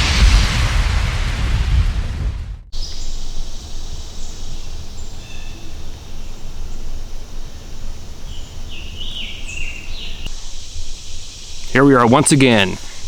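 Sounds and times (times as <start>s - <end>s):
faint bird chirps: 2.8s - 13.0s.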